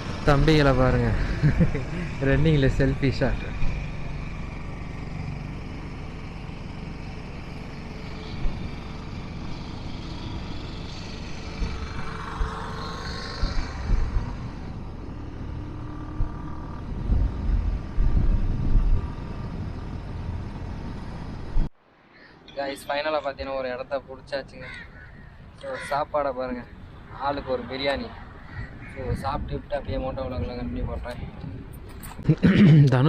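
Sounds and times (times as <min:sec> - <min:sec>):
motorcycle engine drone: 0:00.0 - 0:21.7
wind rumble on microphone: 0:11.0 - 0:21.7, 0:28.0 - 0:32.4.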